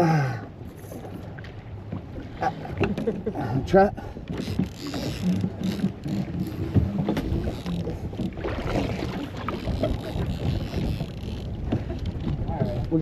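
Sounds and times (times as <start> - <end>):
boat engine rumble: 0.0 - 13.0
wind on microphone: 4.6 - 13.0.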